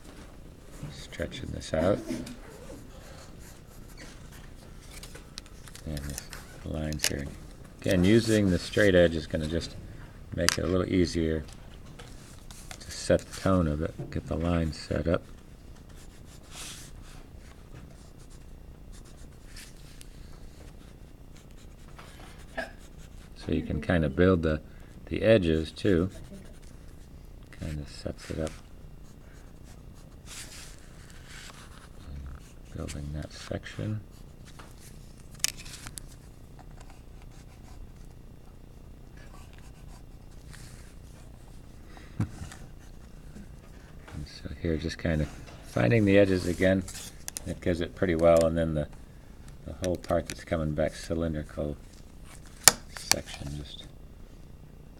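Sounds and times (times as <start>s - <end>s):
pencil scratching on paper: 1.8s - 4.4s, 20.4s - 23.4s, 25.5s - 26.7s.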